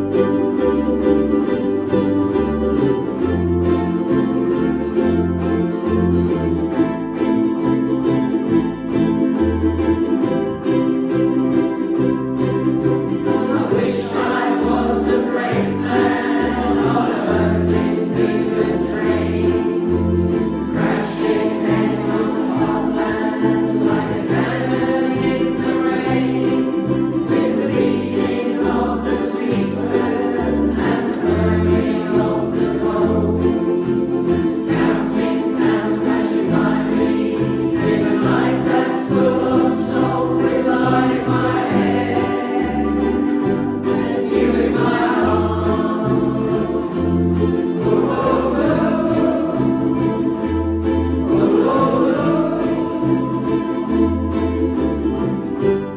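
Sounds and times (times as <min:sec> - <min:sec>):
person singing: 0:13.1 - 0:55.3.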